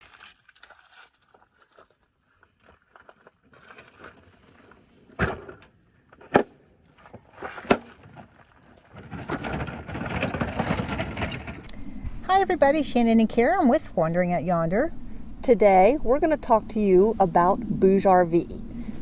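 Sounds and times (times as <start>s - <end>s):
handling clicks and rustles: 0.0s - 12.2s.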